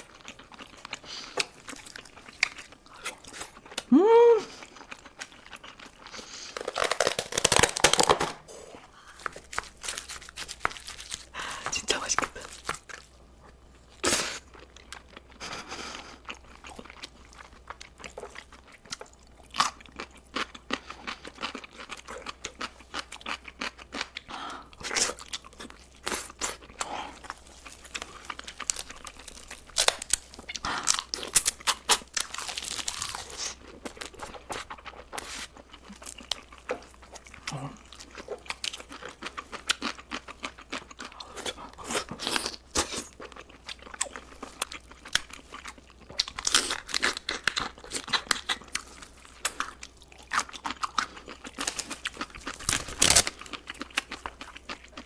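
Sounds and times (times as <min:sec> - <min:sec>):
crunchy bites: 0:06.4 - 0:08.4, 0:24.8 - 0:35.3, 0:37.5 - 0:55.0.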